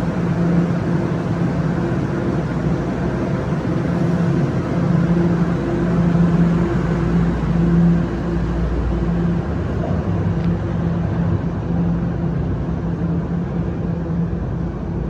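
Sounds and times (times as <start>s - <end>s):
subway train droning: 0.0s - 15.0s.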